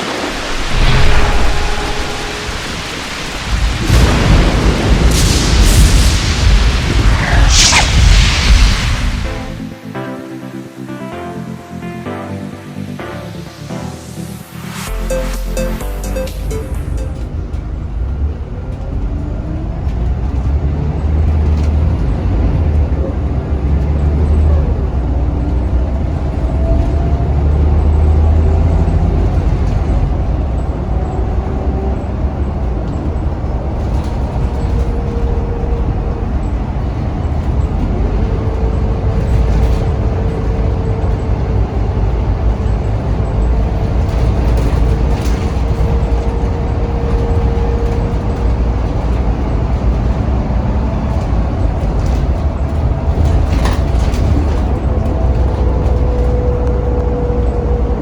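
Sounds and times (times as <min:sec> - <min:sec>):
bus diesel engine rumbling: 0:15.8 - 0:58.0.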